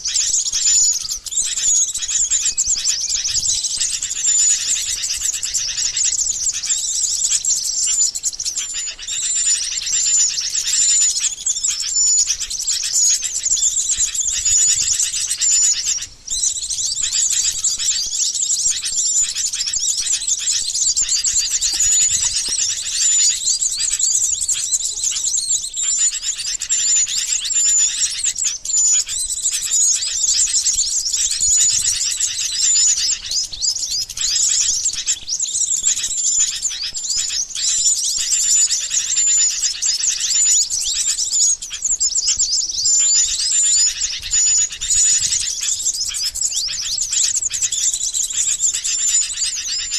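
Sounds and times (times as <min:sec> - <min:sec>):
bulbuls chattering: 0:00.0 - 0:39.6
small songbirds twittering: 0:00.0 - 0:49.9.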